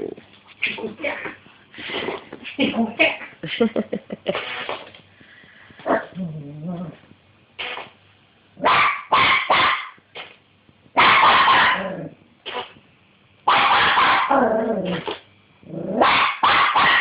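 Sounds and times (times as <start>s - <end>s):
dog barking: 8.6s - 10.0s, 11.0s - 11.9s, 13.5s - 14.4s, 16.0s - 17.0s.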